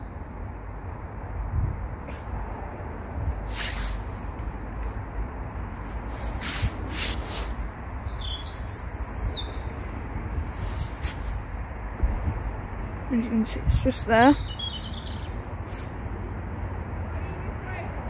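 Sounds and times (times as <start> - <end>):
small bird chirping: 8.0 - 9.9, 14.0 - 15.4.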